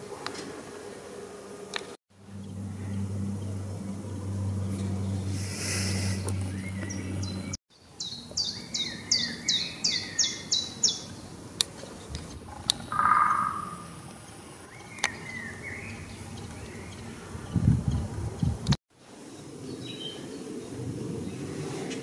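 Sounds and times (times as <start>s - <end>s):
steady low hum: 1.0s - 7.6s
songbird singing high notes: 12.8s - 13.9s.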